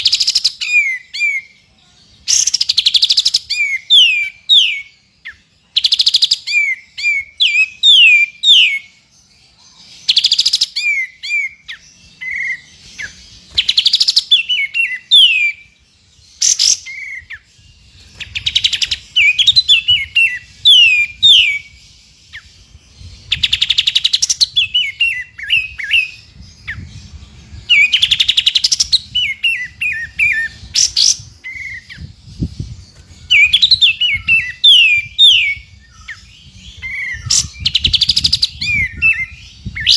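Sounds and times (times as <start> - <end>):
songbird whistled notes: 0.0 - 9.0, 9.6 - 39.9.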